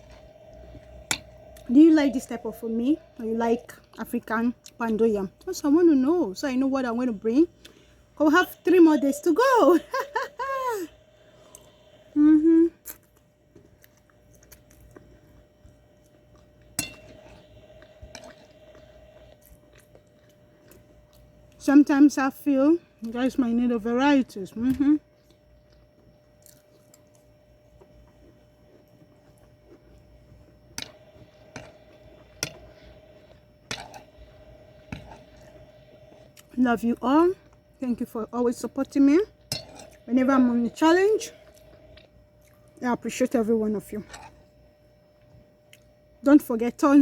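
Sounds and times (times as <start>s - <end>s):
faint steady hum: 0.0s - 47.0s
person chewing food: 12.8s - 21.4s, 25.2s - 36.5s, 41.3s - 42.8s, 44.0s - 44.8s.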